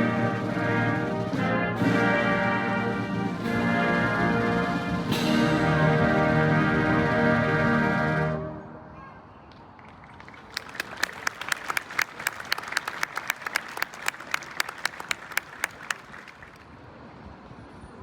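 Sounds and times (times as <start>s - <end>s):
audience applauding: 9.8s - 16.7s.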